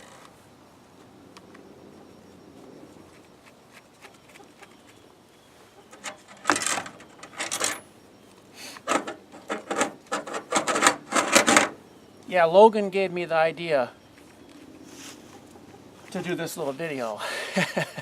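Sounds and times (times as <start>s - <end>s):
metal scraping and rattling: 5.9s - 7.8s, 8.8s - 11.8s.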